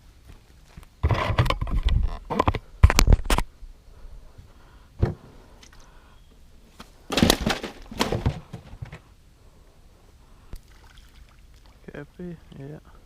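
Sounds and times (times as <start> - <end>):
handling noises: 6.7 - 9.1.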